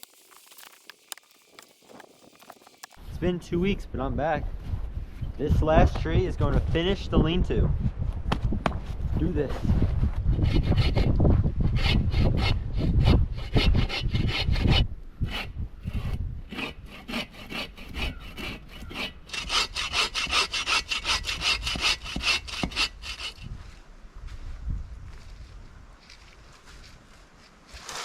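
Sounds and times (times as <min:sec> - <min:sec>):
hand saw cutting through wood: 0:10.3 - 0:11.1, 0:11.7 - 0:23.5, 0:27.7 - 0:28.0.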